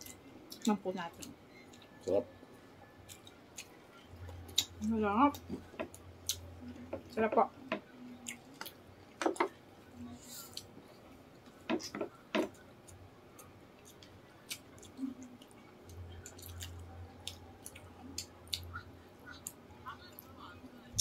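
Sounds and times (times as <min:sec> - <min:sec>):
low steady hum: 0:00.0 - 0:21.0
wet chewing and lip smacks: 0:03.0 - 0:06.5, 0:12.8 - 0:20.3.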